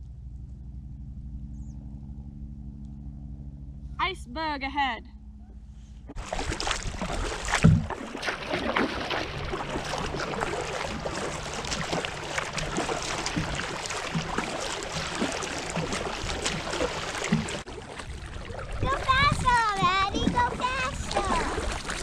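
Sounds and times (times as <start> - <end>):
dull knock on hull: 6.1 - 8.0
water splashing against kayak hull: 6.1 - 22.0.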